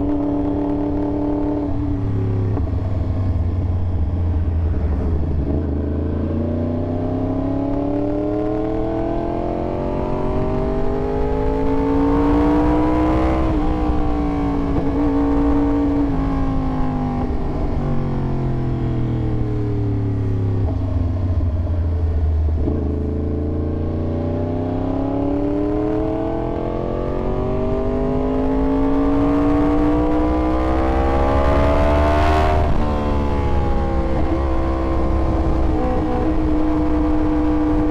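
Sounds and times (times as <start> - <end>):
steady low rumble: 0.0 - 9.1, 10.2 - 25.5
motorcycle engine revving: 0.0 - 37.9.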